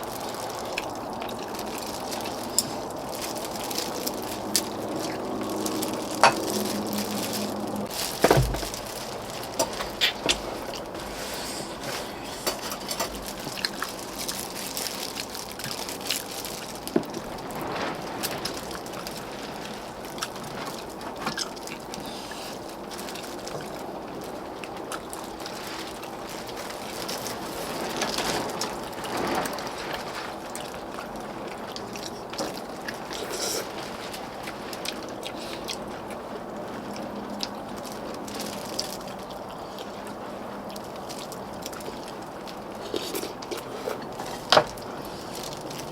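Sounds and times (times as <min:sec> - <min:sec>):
slurping broth: 0:09.5 - 0:13.8, 0:32.9 - 0:34.0, 0:42.8 - 0:45.3
utensils clicking against bowls: 0:11.9 - 0:13.9.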